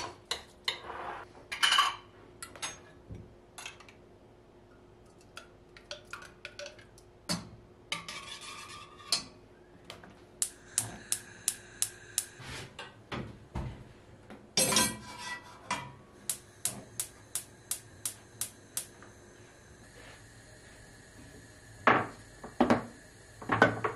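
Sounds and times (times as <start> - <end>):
dishes and cutlery clinking: 14.6 - 15.9.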